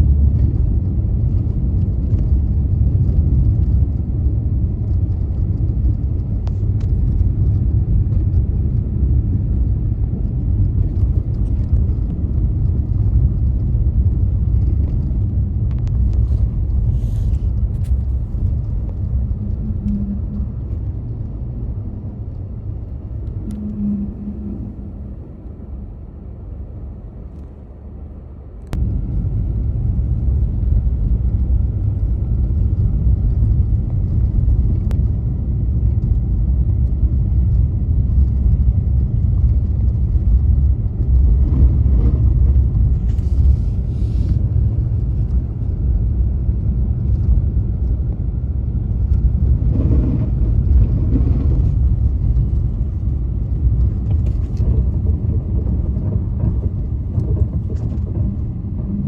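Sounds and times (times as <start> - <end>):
car engine and road rumble: 0.0 - 59.0
click: 23.2 - 23.8.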